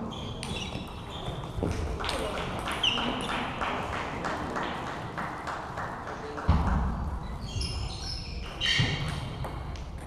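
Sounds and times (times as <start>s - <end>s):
shoe squeaks on floor: 0.0s - 1.8s, 2.8s - 3.4s, 7.2s - 9.4s.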